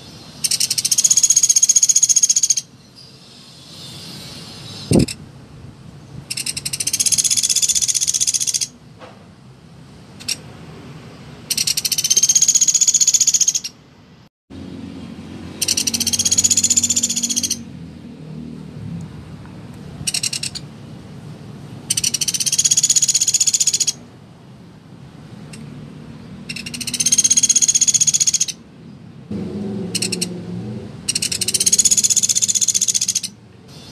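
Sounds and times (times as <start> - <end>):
woodpecker buzzy trilled calls: 0.0 - 5.2, 6.3 - 8.8, 10.2 - 10.4, 11.5 - 13.8, 15.6 - 17.7, 20.0 - 20.7, 21.9 - 24.0, 26.4 - 28.6, 29.9 - 30.4, 31.1 - 33.9.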